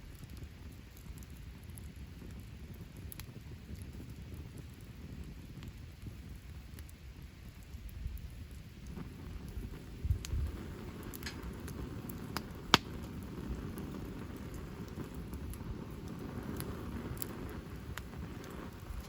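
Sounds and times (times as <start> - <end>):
campfire crackling: 0.0 - 19.0
sharp pop of fire: 8.9 - 19.0.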